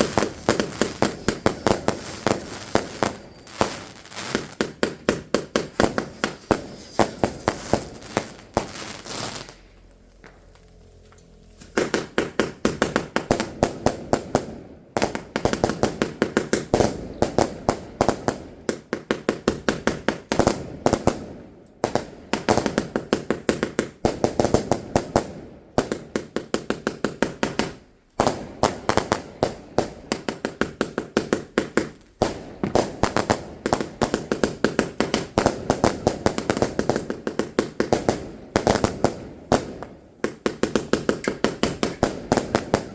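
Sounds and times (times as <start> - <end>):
fireworks banging: 0.0 - 42.9.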